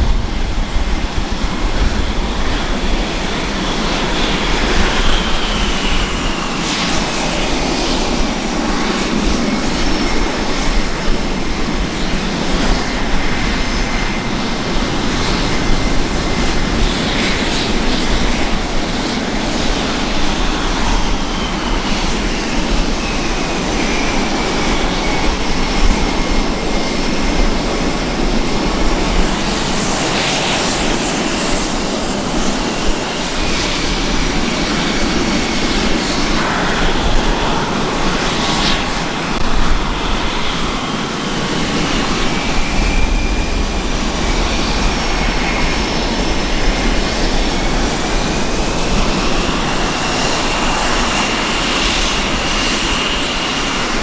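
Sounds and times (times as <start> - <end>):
fighter jet engine running: 0.0 - 54.0
high engine whine: 0.0 - 54.0.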